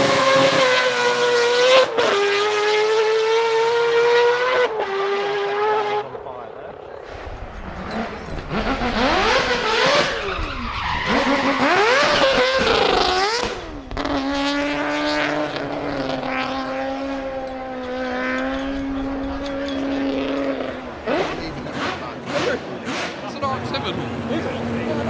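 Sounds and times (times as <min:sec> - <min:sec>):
car engine revving: 0:00.0 - 0:25.0
tyre squeal: 0:07.6 - 0:13.1.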